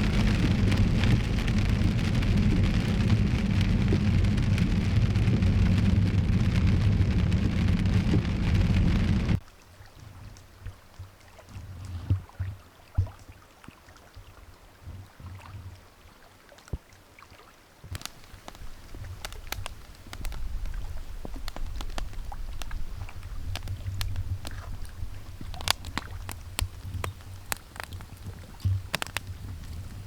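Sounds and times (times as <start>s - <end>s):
wind rumbling on microphone: 0.0s - 9.4s, 10.0s - 13.3s, 17.9s - 30.0s
sharp ticks and taps: 18.0s - 22.8s, 23.4s - 29.7s.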